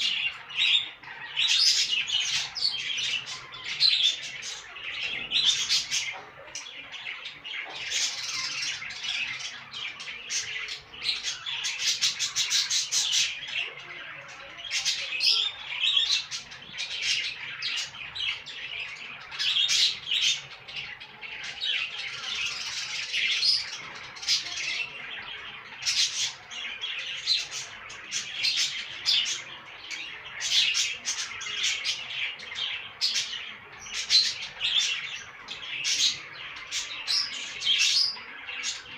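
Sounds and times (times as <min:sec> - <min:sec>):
budgerigars chirping and squawking: 0:00.0 - 0:38.9.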